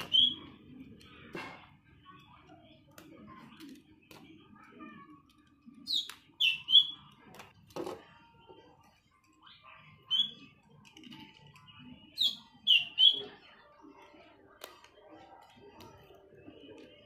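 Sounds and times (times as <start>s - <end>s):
small bird chirping: 0.0s - 0.6s, 5.8s - 7.2s, 9.4s - 10.6s, 11.4s - 13.7s.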